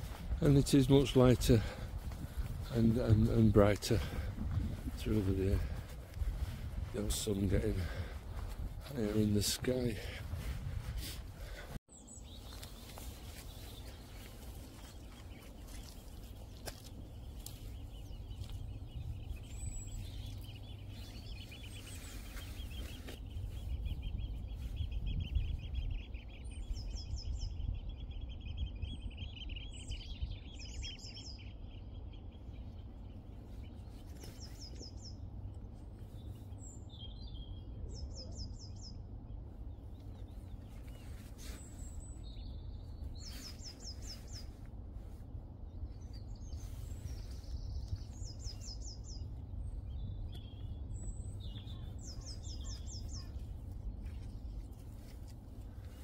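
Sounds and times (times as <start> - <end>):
steady low rumble: 0.0 - 56.0
high buzzy bird phrases: 2.7 - 5.8, 8.8 - 10.3
songbird chattering trill: 46.0 - 55.1.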